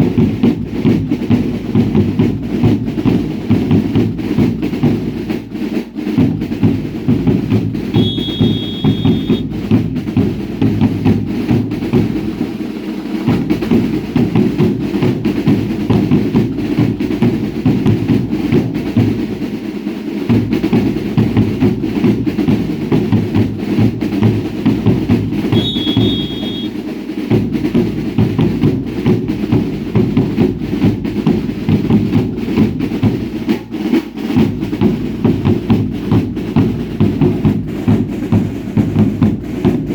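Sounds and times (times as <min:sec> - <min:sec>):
fast drumming with bass drum: 0:00.0 - 0:39.9
short high steady tone: 0:08.0 - 0:09.4, 0:25.5 - 0:26.8.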